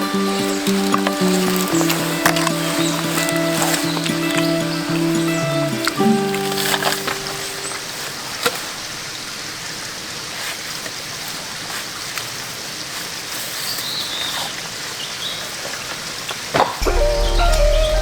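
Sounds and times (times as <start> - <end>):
stream flowing: 0.0 - 13.2
short high chirps: 16.8 - 18.0.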